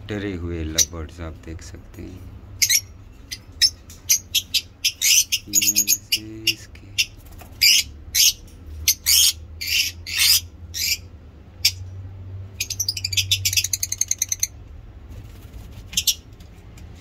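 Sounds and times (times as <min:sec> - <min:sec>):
lovebirds shrill calling: 0:02.6 - 0:11.9, 0:12.6 - 0:14.6, 0:15.9 - 0:16.3.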